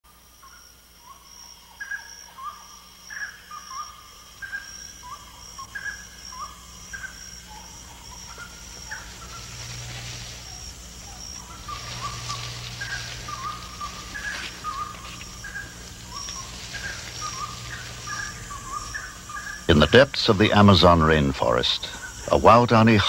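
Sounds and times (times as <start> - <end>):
high insect drone: 0.0 - 23.0
low hum: 1.0 - 23.0
bird whistled calls: 1.8 - 19.9.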